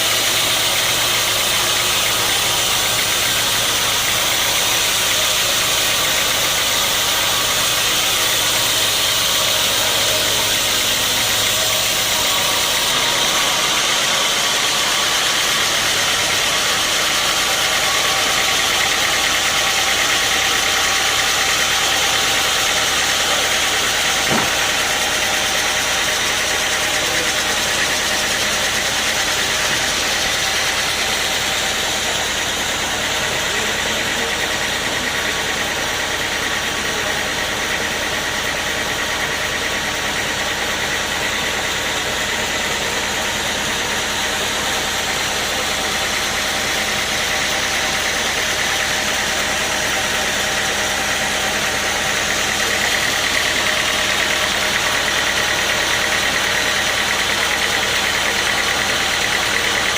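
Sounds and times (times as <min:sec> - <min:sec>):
sawmill machinery running: 0:00.0 - 0:59.9
short knock: 0:24.2 - 0:24.7.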